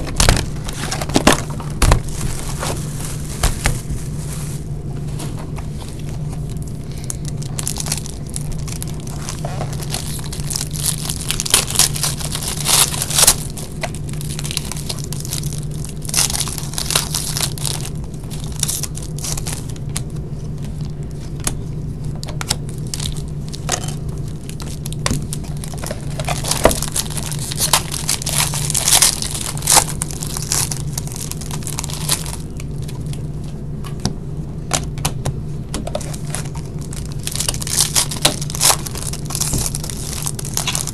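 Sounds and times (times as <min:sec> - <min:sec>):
steady low hum: 0:00.0 - 0:40.9
packaging torn open and crinkled: 0:06.4 - 0:21.6, 0:22.2 - 0:33.2, 0:35.9 - 0:40.9.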